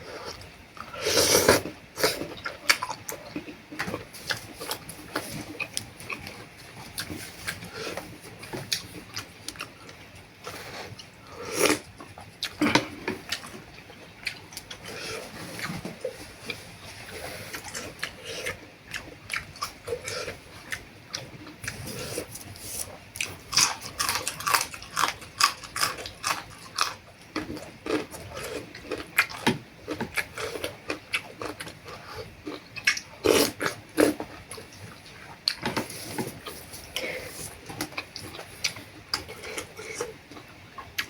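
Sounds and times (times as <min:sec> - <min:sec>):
person slurping noodle soup: 0:01.0 - 0:02.3.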